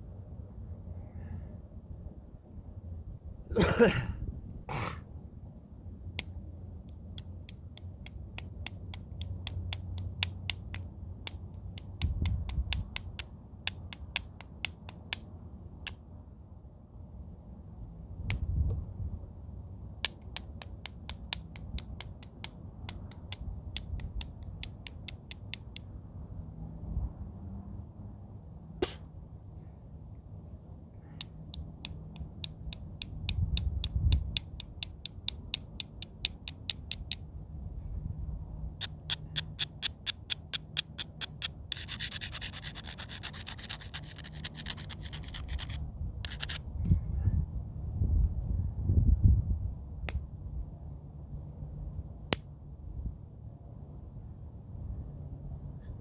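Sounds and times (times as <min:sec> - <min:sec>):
light sharp ticks of stone: 0:06.2 - 0:16.0, 0:20.0 - 0:25.9, 0:31.2 - 0:37.3, 0:38.8 - 0:46.6.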